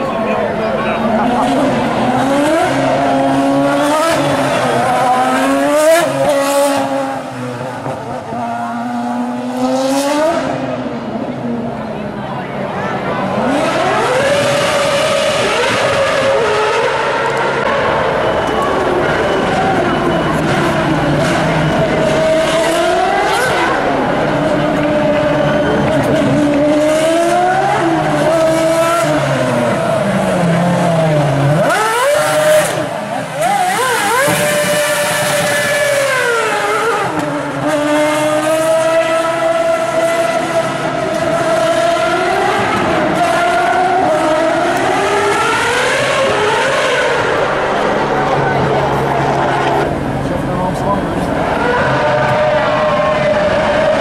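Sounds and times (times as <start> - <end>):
racing car engine revving: 0.0 - 54.0.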